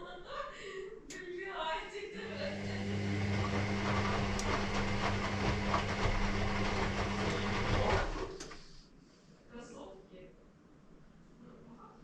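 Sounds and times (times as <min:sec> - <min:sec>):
washing machine running: 0:02.2 - 0:08.8.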